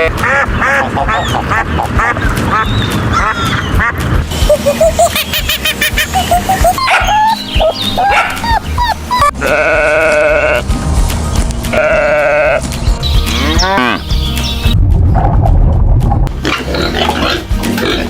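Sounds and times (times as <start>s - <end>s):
sheep bleating: 9.3s - 10.6s, 11.7s - 12.7s.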